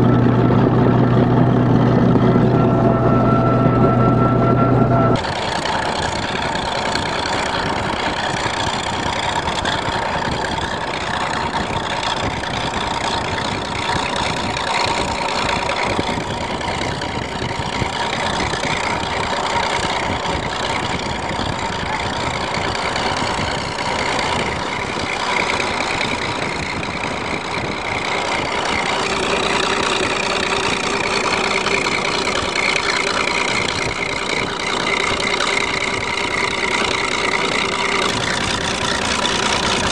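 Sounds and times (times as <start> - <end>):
high whine: 0.0 - 8.9, 24.4 - 39.9
vehicle engine running: 0.0 - 39.9.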